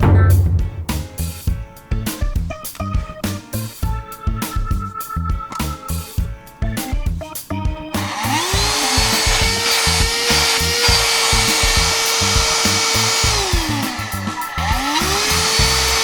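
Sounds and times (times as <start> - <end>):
background music with steady beat: 0.0 - 16.0
handheld vacuum cleaner motor: 8.0 - 16.0.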